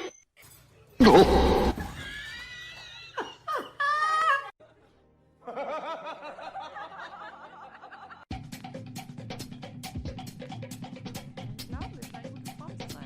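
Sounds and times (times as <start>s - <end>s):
music with clicking beat: 8.3s - 13.0s.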